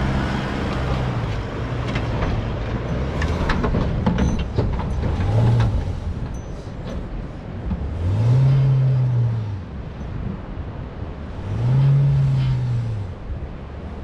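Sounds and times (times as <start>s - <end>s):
engine revving: 0.0s - 3.8s, 7.8s - 9.9s, 11.2s - 13.8s.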